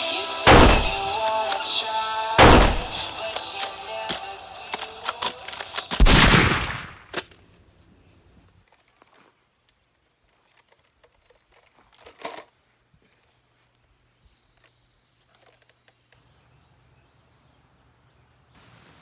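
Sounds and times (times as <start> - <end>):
sharp gunshots: 0.4 - 7.1
loud bang: 0.5 - 1.2, 2.4 - 3.2, 6.0 - 7.0
single crack: 0.5 - 1.8, 2.4 - 7.3.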